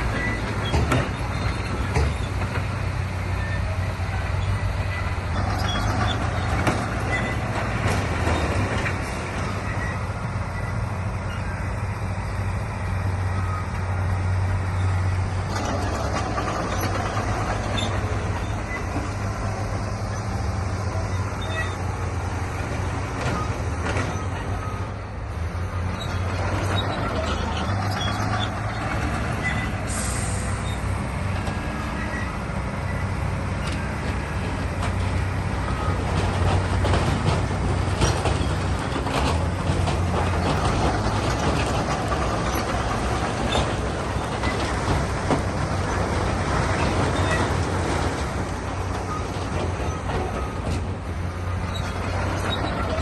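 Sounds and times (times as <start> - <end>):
diesel machinery engine running: 0.0 - 53.0
metal clanking and clattering: 0.1 - 3.6, 4.8 - 10.0, 14.7 - 24.8, 33.6 - 53.0.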